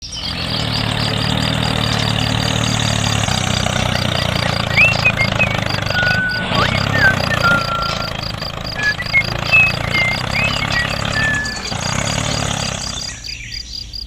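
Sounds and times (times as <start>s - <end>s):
small tractor engine running: 0.0s - 13.4s
fast regular ticking: 0.2s - 13.2s
short whistled chirps: 3.7s - 12.0s.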